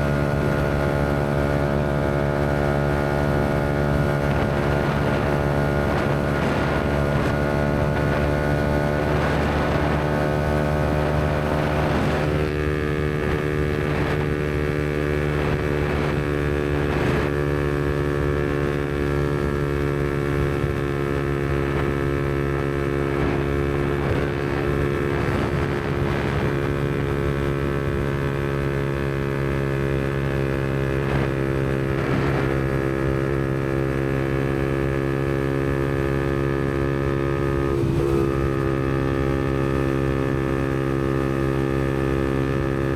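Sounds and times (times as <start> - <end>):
motorcycle engine cruising: 0.0 - 42.9.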